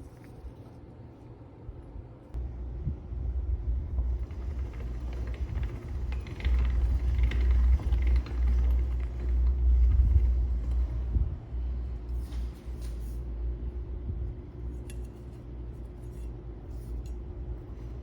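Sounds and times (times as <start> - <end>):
hand-cranked mechanism rumbling: 3.9 - 12.9
light scraping and clicking: 4.0 - 11.2.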